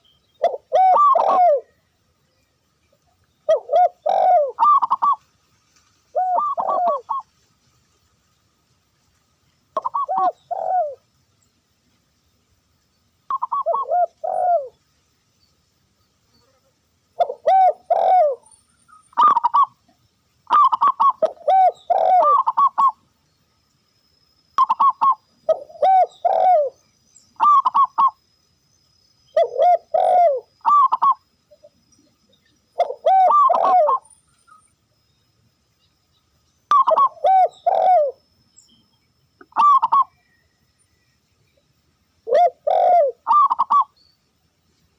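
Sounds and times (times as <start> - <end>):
dove cooing: 0.4 - 1.8, 3.4 - 5.2, 6.1 - 7.3, 9.8 - 11.0, 13.3 - 14.8, 17.2 - 18.4, 19.1 - 19.8, 20.5 - 23.0, 24.6 - 26.8, 27.4 - 28.2, 29.3 - 31.8, 32.8 - 34.0, 36.7 - 38.2, 39.4 - 40.2, 42.3 - 43.9.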